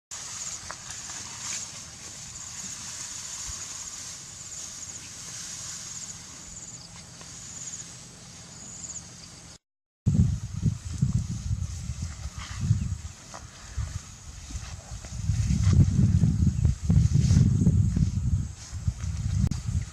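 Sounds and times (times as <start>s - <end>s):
steady hiss: 0.1s - 9.0s.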